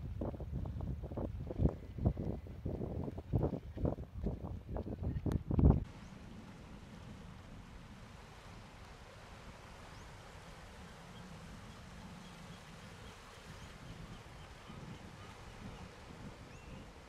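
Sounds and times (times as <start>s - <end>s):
low steady rumble: 4.6s - 14.9s.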